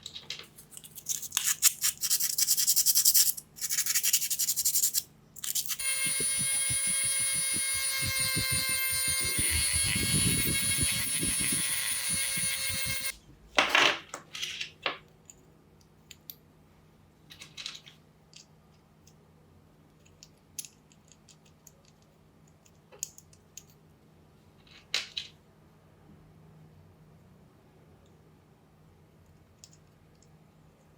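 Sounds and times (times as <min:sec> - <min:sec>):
parts being handled: 0:00.0 - 0:02.4, 0:17.2 - 0:19.2, 0:19.9 - 0:23.8
power tool motor whining: 0:05.8 - 0:13.2.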